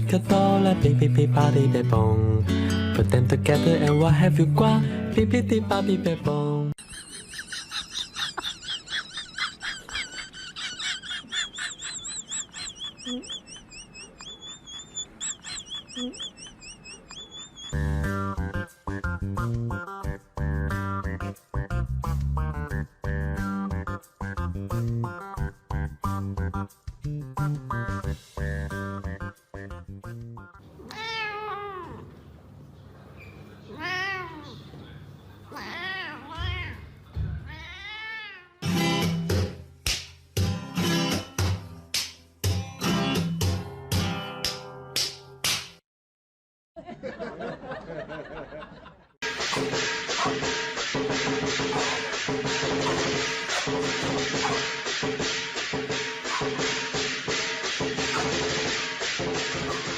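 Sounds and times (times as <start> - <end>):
small birds chirping: 10.8 - 18.0
cat meowing: 30.8 - 32.1, 33.7 - 34.6, 35.5 - 38.6.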